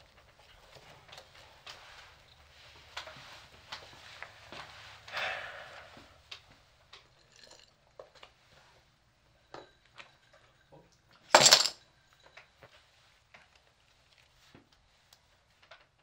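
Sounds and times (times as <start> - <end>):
chips clattering onto table: 11.3 - 11.8.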